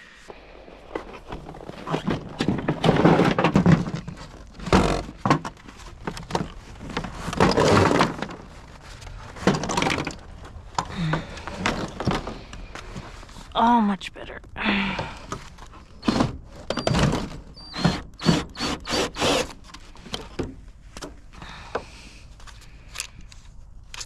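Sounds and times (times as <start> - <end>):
hard objects knocking and scraping: 0.9 - 13.2.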